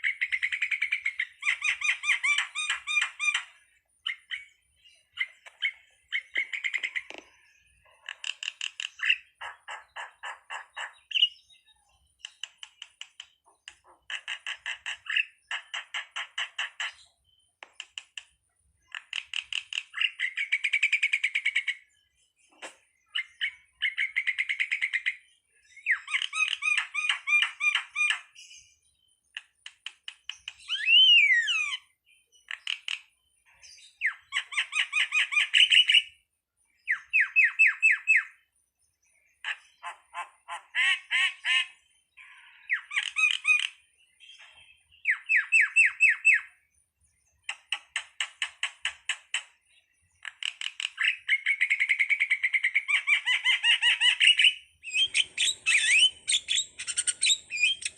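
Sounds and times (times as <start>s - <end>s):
starling chattering song: 0.0s - 7.2s, 39.4s - 43.8s, 50.2s - 57.9s.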